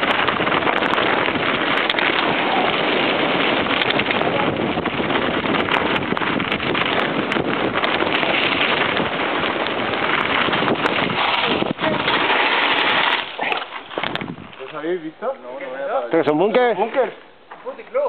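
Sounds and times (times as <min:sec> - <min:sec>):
bike clicks and rattles: 0:00.0 - 0:04.6, 0:05.4 - 0:14.8
wind rushing over microphone: 0:00.0 - 0:15.4.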